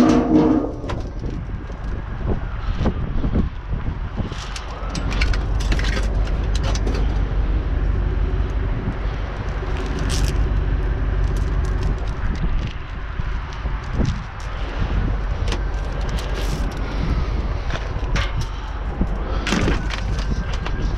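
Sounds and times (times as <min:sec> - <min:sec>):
vehicle engine rumbling: 0:00.0 - 0:20.9
clinks and rattles: 0:04.4 - 0:07.2.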